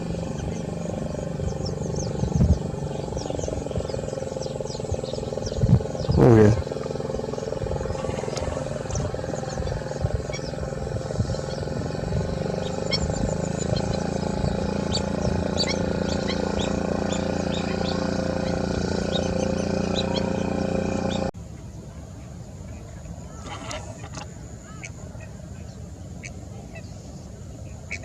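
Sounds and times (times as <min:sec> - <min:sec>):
wetland birds chirping: 0:00.0 - 0:21.3, 0:22.6 - 0:28.0
steady low hum: 0:00.0 - 0:21.4.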